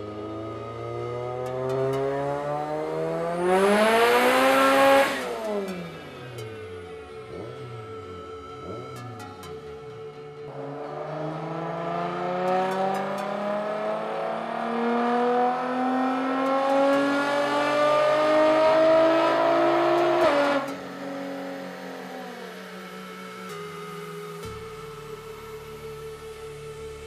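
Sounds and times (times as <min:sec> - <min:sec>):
car engine revving at full throttle: 0:00.0 - 0:06.6, 0:10.4 - 0:23.1.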